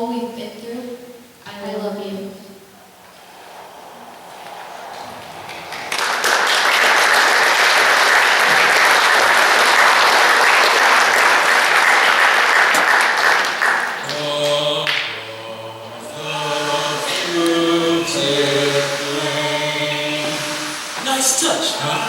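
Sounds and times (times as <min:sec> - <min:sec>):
audience applauding: 0:04.4 - 0:20.9.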